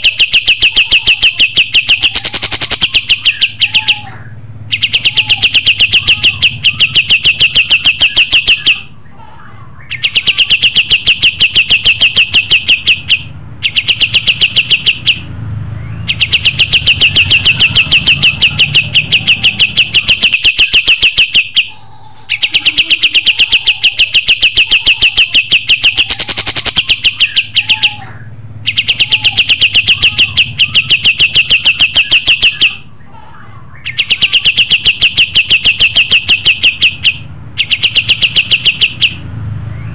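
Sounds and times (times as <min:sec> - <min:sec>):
songbird singing fast trills: 0:00.0 - 0:04.0, 0:04.7 - 0:08.8, 0:09.9 - 0:21.6, 0:22.3 - 0:28.0.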